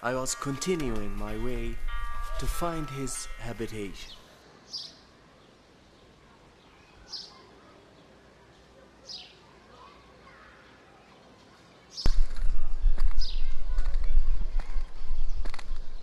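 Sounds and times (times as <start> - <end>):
faint background noise: 0.0 - 16.0
bird chirping: 0.1 - 5.6.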